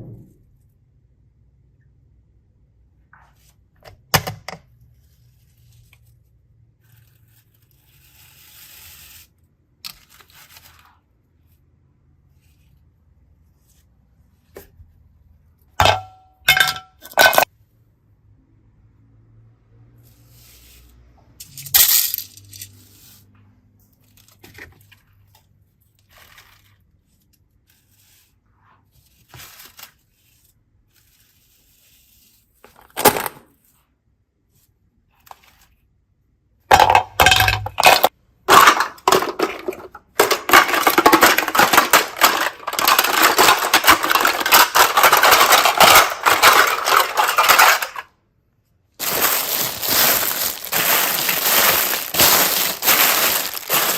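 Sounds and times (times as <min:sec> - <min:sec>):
hard objects clinking and tapping: 0:15.8 - 0:17.5, 0:36.7 - 0:48.0
dense crackling and rattling: 0:36.7 - 0:48.1, 0:49.0 - 0:53.9.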